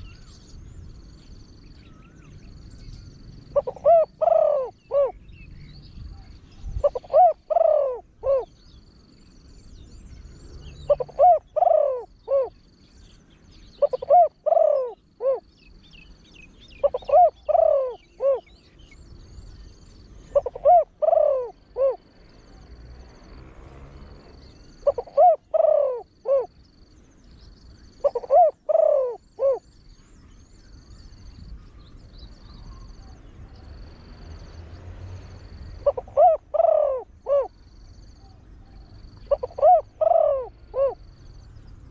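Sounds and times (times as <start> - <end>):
dove cooing: 3.4 - 5.3, 6.2 - 8.6, 10.6 - 12.8, 13.7 - 19.0, 19.7 - 23.0, 23.6 - 26.8, 27.8 - 29.7, 35.4 - 41.9.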